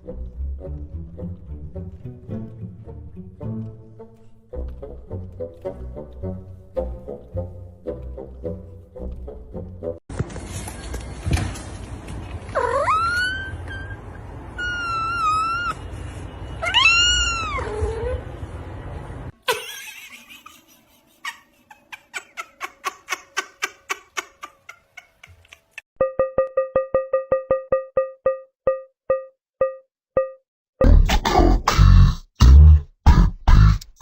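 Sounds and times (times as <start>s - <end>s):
cat meowing: 12.6s - 14.0s, 14.6s - 15.8s, 16.6s - 18.2s.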